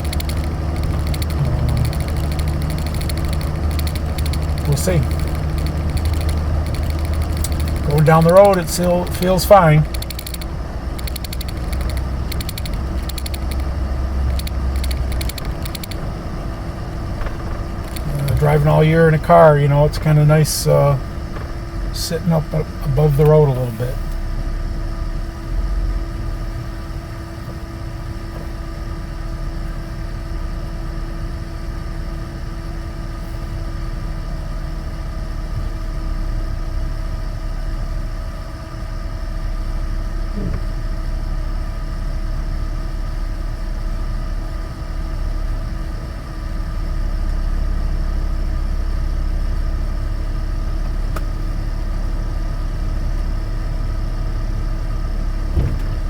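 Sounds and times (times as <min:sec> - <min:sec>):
steady tones: 0:00.0 - 0:21.1
engine and road noise drone: 0:00.0 - 0:56.0.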